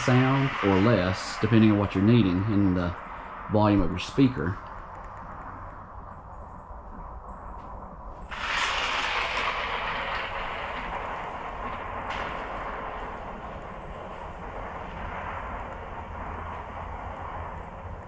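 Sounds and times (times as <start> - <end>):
thunder crack: 0.0 - 7.2, 7.8 - 18.0.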